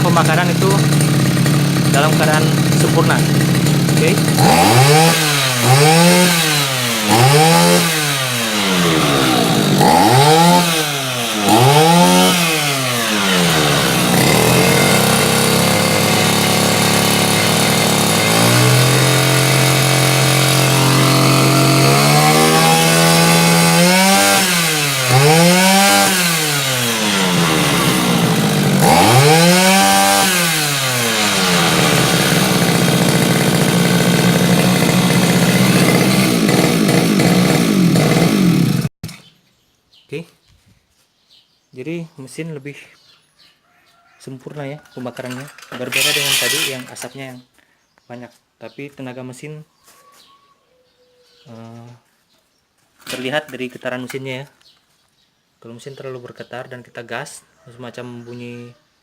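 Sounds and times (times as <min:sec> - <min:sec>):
brush cutter engine revving: 0:00.0 - 0:39.2, 0:44.8 - 0:47.2.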